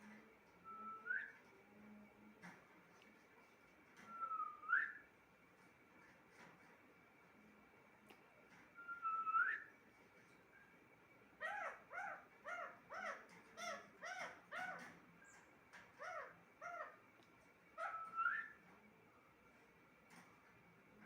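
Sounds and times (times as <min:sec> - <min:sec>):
parrot whistling: 0:17.8 - 0:18.6.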